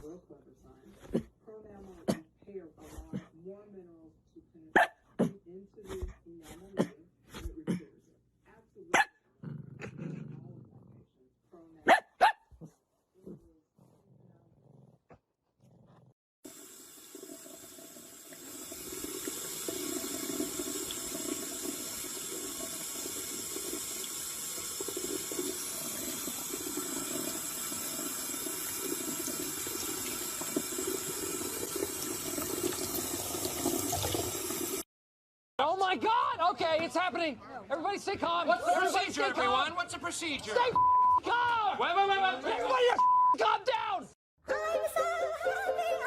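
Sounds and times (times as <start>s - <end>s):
water running from tap: 16.4s - 34.9s.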